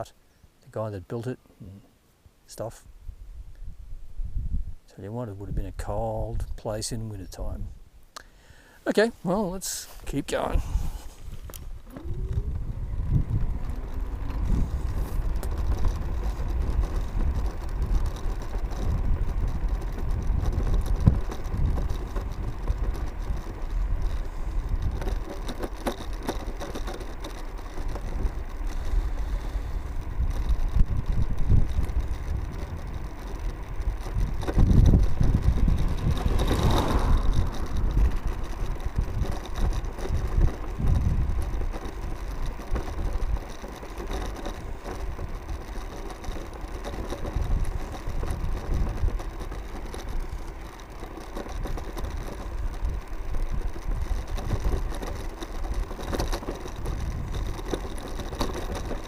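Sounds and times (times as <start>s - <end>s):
wind on microphone: 2.9s - 6.6s, 10.5s - 26.2s, 27.9s - 43.5s, 47.2s - 50.6s, 51.4s - 59.0s
scooter wheels on road: 3.7s - 59.0s.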